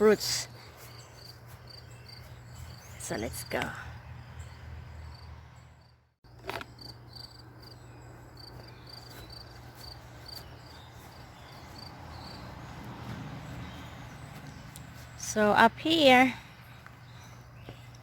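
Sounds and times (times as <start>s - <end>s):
cricket chirping: 4.2s - 5.9s, 6.7s - 12.6s.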